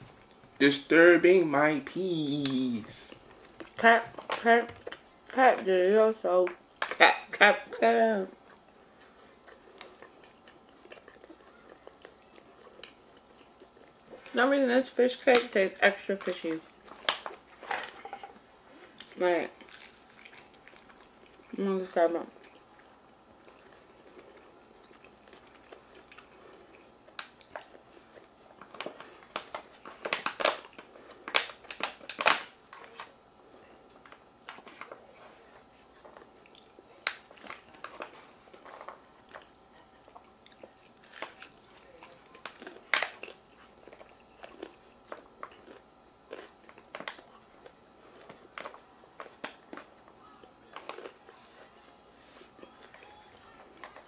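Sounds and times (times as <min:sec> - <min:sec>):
chewing and biting: 0:08.4 - 0:14.4, 0:16.2 - 0:21.5, 0:22.3 - 0:32.4, 0:35.8 - 0:51.8.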